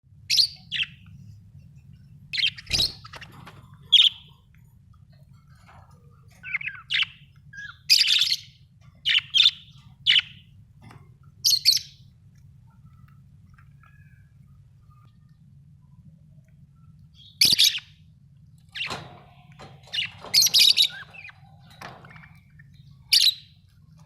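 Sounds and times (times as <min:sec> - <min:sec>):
faint low hum: 0:00.1 - 0:24.0
budgerigars chirping: 0:00.3 - 0:01.0, 0:02.3 - 0:04.4, 0:06.3 - 0:10.5, 0:11.4 - 0:12.1, 0:17.2 - 0:18.0, 0:18.7 - 0:24.0.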